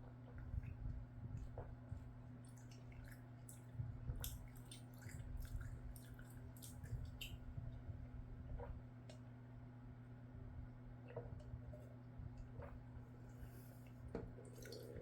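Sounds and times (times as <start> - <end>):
wet chewing: 2.4 - 7.4.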